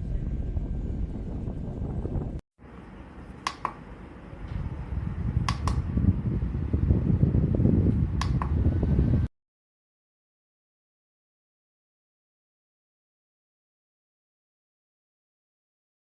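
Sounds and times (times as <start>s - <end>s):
air rumbling on microphone: 0.0s - 2.4s, 4.3s - 9.3s
desk fan running: 0.0s - 9.3s
fan button clicking: 3.4s - 3.8s, 5.4s - 6.0s, 7.9s - 8.7s.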